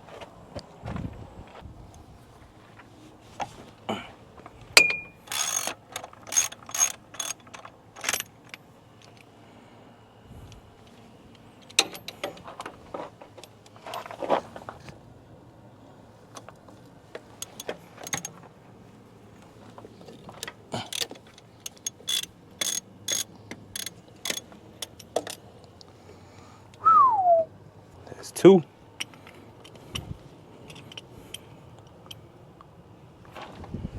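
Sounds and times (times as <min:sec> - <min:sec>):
ratchet wrench clicking: 0:04.8 - 0:08.3, 0:17.4 - 0:18.3, 0:20.9 - 0:25.4
tools clinking against metal: 0:04.8 - 0:08.5, 0:17.4 - 0:18.4, 0:20.1 - 0:25.4.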